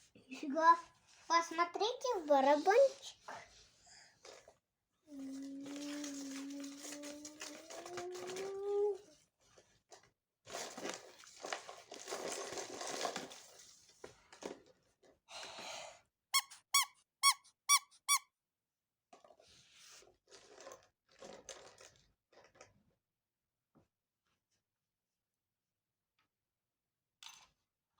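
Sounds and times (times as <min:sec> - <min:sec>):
toy being handled and rustled: 0:00.5 - 0:03.3, 0:05.1 - 0:09.2.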